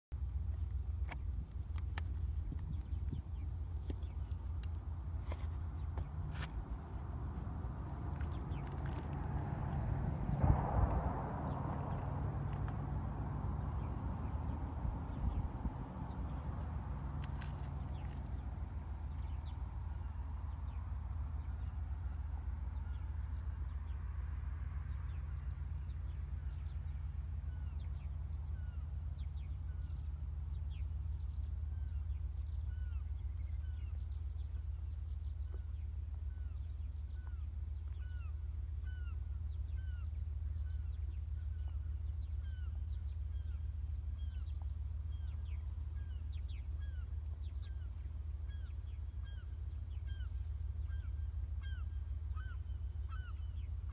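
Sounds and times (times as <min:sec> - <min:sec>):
low rumble: 0:00.1 - 0:24.1
birds calling: 0:01.0 - 0:10.7, 0:25.1 - 0:53.9.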